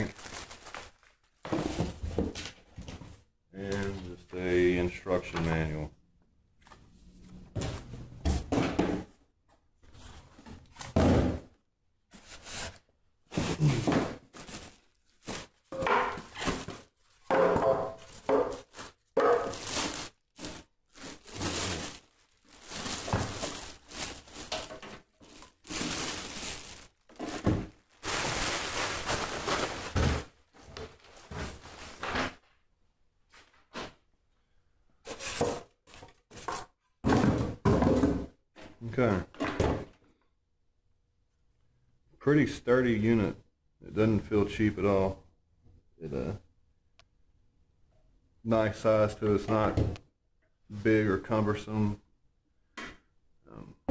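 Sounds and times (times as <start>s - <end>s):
cardboard and plastic packaging rustling: 0.0s - 3.2s, 12.1s - 32.6s
objects thunking down: 15.3s - 19.9s.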